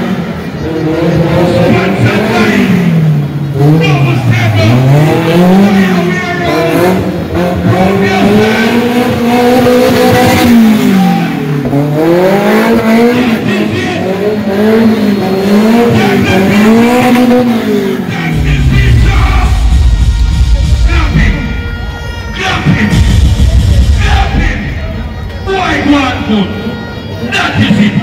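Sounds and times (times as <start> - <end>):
car engine revving hard: 0.0 - 21.6.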